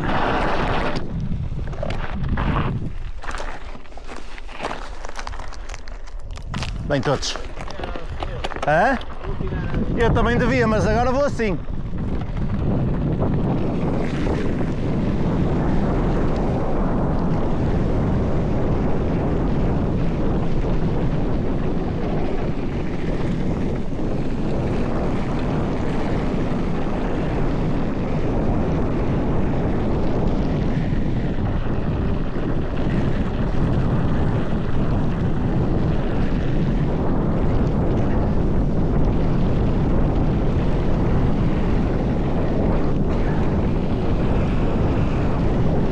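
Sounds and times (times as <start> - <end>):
bike tyres rumbling on dirt: 0.0 - 45.9
wind buffeting microphone: 0.0 - 45.9.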